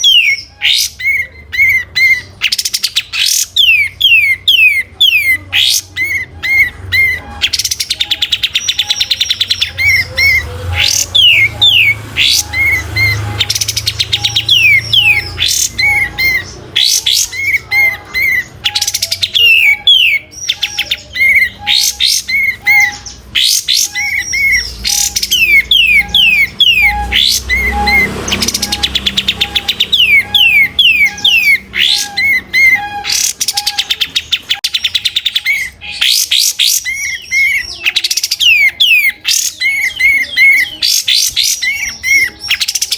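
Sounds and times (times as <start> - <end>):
bird singing rapid trills: 0.0 - 42.9.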